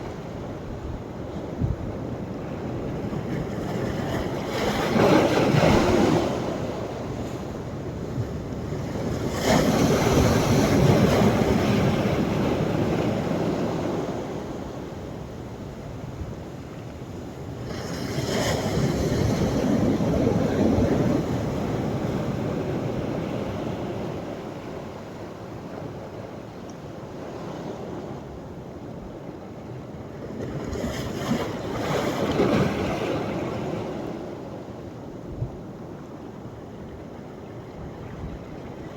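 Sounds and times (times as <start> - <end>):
waves breaking on a beach: 0.0 - 38.9.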